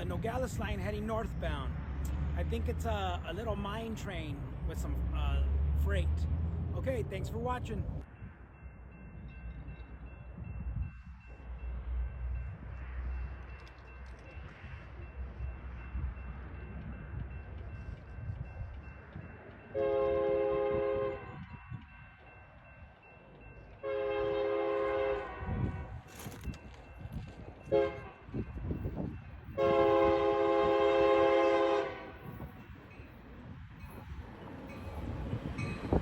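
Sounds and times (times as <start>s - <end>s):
low train rumble: 0.0s - 36.0s
locomotive air horn blasts: 19.7s - 21.4s, 23.8s - 25.9s, 27.7s - 28.2s, 29.6s - 32.3s.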